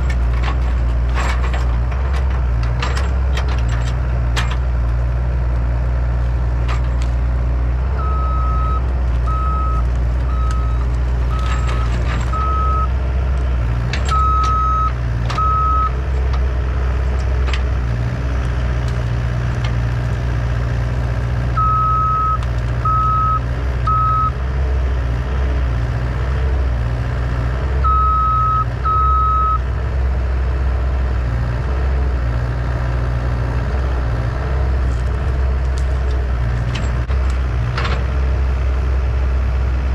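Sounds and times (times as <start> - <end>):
diesel engine running: 0.0 - 39.9
reversing alarm beeps: 8.0 - 12.9, 14.1 - 15.9, 21.6 - 24.4, 27.8 - 29.6.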